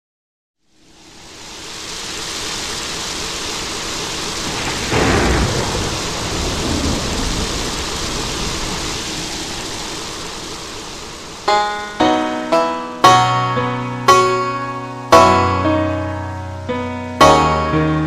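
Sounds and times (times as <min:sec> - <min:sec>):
steady rain hiss: 0:00.6 - 0:18.0
thunder clap rumbling: 0:02.5 - 0:11.6.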